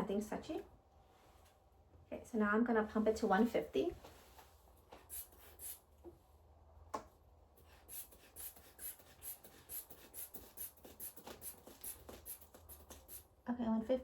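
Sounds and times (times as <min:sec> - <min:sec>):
inflation bulb puffing air: 0:05.0 - 0:05.9, 0:07.6 - 0:13.3.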